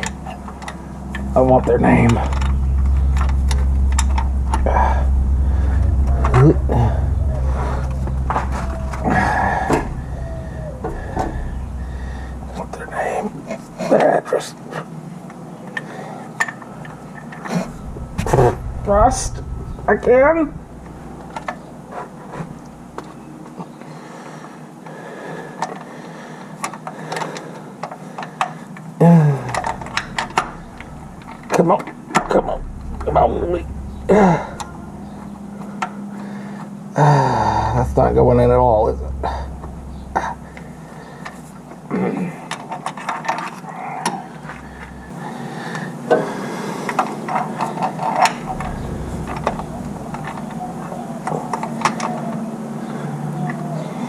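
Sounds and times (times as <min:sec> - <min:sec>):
steady low hum: 0:00.0 - 0:14.6, 0:16.8 - 0:23.8, 0:29.0 - 0:42.6, 0:43.8 - 0:45.8, 0:48.2 - 0:52.7.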